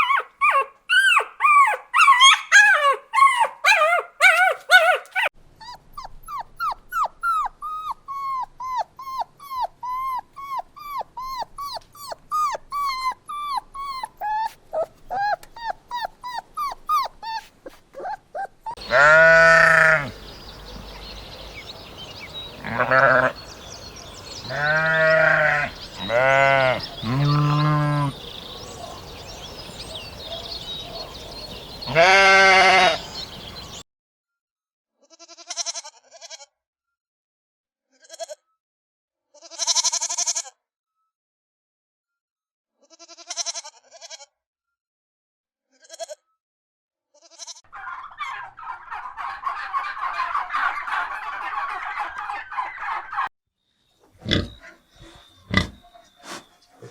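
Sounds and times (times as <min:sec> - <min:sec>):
livestock bleating: 0:18.8 - 0:20.2, 0:22.5 - 0:23.5, 0:24.4 - 0:28.3, 0:31.9 - 0:33.2, 0:35.2 - 0:36.4, 0:39.4 - 0:40.5, 0:42.9 - 0:44.2, 0:47.2 - 0:47.6, 0:54.2 - 0:54.7, 0:55.5 - 0:56.9.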